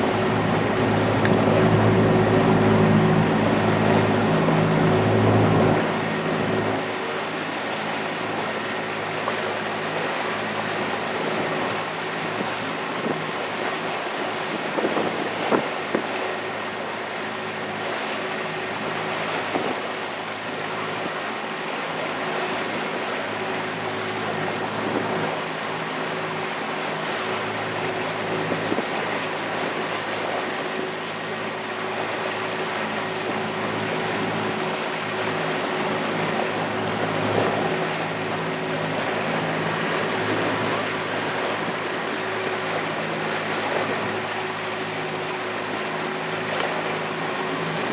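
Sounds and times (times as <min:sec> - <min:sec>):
boat engine humming: 0:00.0 - 0:07.0
rushing water: 0:00.0 - 0:07.0
wind: 0:00.0 - 0:47.9.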